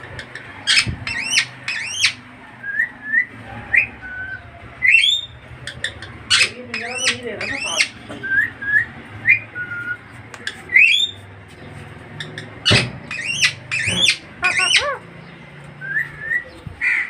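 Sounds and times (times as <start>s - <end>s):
parrot squawking and whistling: 0.6s - 10.0s, 12.2s - 15.0s.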